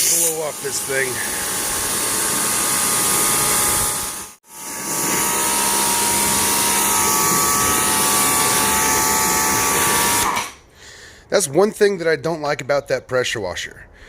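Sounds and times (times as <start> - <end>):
pressure washer water jet hissing: 0.0 - 10.5
motor and pump whining: 0.0 - 10.6.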